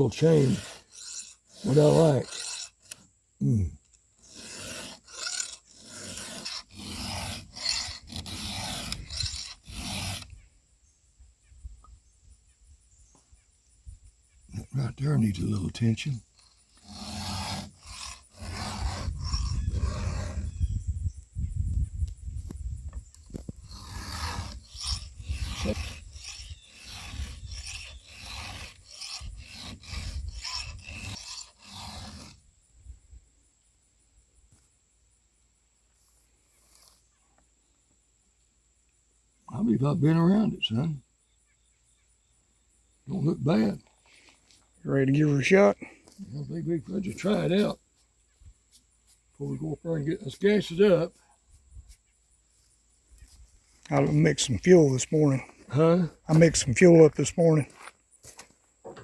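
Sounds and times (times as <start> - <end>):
file rasping on chainsaw chain: 0.0 - 10.4, 14.6 - 20.6, 23.2 - 32.5, 36.5 - 37.2, 43.1 - 47.8, 48.7 - 51.3, 53.2 - 57.9.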